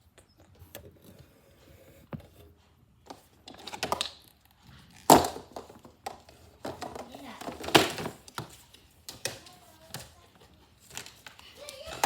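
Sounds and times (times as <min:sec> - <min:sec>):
plastic toy parts clattering: 0:04.9 - 0:10.2.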